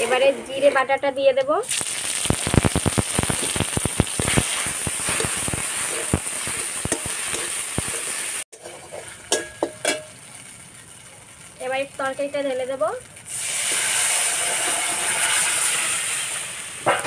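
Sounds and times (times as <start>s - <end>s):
oil crackling pops: 1.6s - 8.5s
paste sizzling in hot oil: 1.6s - 16.9s
metal spatula clinking on pan: 8.6s - 10.2s.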